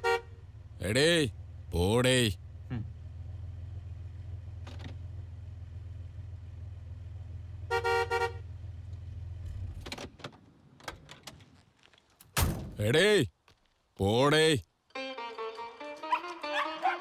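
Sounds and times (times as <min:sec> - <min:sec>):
car horn honking: 0:00.0 - 0:00.4, 0:07.7 - 0:08.6
car engine idling: 0:00.0 - 0:10.8.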